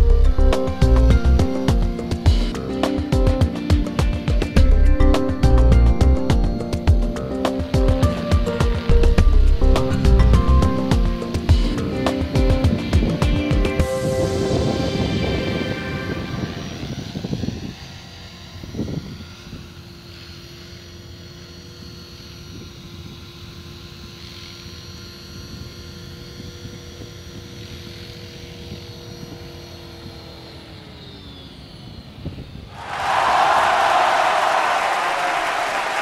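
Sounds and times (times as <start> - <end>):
model helicopter whine: 0.0 - 32.7
applause: 32.8 - 36.0.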